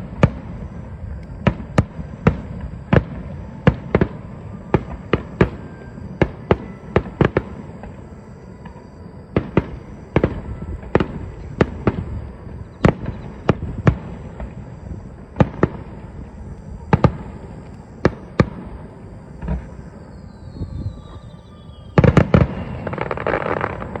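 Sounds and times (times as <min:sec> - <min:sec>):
fireworks bangs: 0:00.0 - 0:24.0
fireworks crackling: 0:00.0 - 0:24.0
falling whistle: 0:02.4 - 0:15.8, 0:16.5 - 0:24.0.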